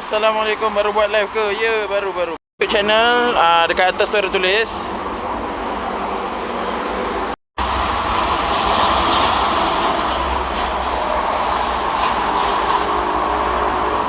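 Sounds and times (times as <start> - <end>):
heavy vehicles passing: 3.1 - 14.0.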